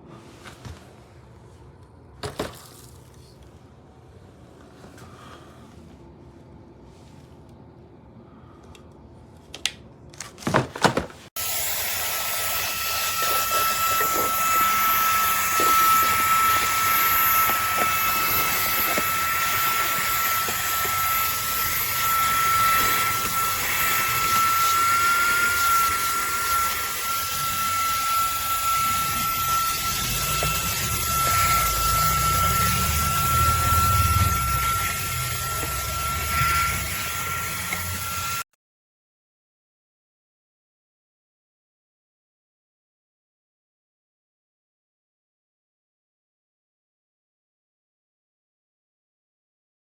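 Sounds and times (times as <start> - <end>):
handheld vacuum running: 11.4 - 38.4.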